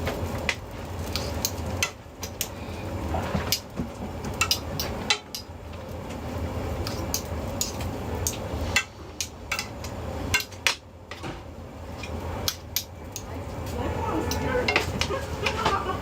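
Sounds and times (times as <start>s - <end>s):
steady low hum: 0.0s - 16.0s
metal utensils clinking on pans: 4.3s - 5.5s, 6.8s - 11.3s, 14.2s - 16.0s.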